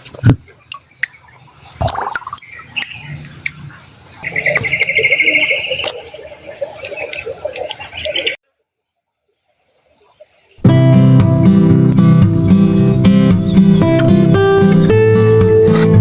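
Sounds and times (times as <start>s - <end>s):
fast chirping trill: 10.6s - 16.0s
high insect drone: 11.4s - 16.0s.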